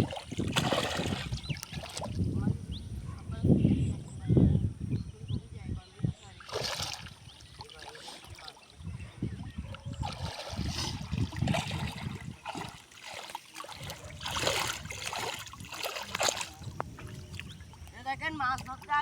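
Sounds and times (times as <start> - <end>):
sharp water splashes: 0.0 - 2.3, 6.4 - 8.8, 9.9 - 17.8
wading through shallow water: 0.0 - 4.3, 5.2 - 19.0.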